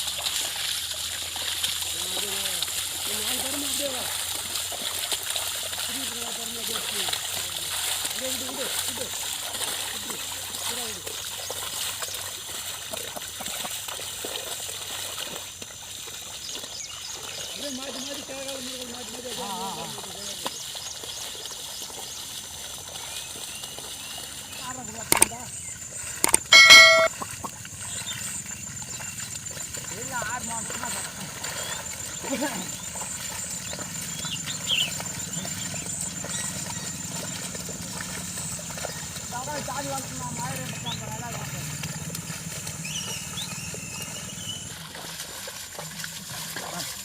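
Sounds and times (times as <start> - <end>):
muddy water splashing: 0.0 - 47.0
short high chirps: 26.2 - 27.1
low engine hum: 40.2 - 45.3.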